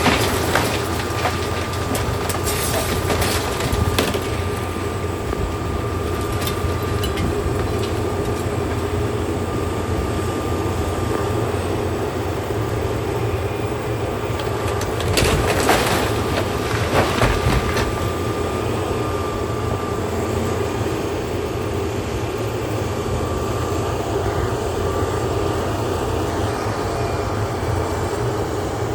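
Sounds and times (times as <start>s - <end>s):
debris cracking and crashing: 0.0s - 8.9s, 14.3s - 18.7s
demolition machinery running: 0.0s - 28.9s
thin steady whine: 0.9s - 15.0s, 17.4s - 28.9s.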